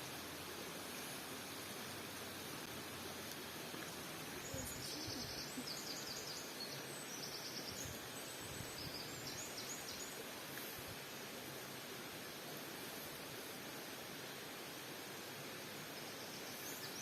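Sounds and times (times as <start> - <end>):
steady background hiss: 0.0 - 17.0
small bird chirping: 4.3 - 10.2.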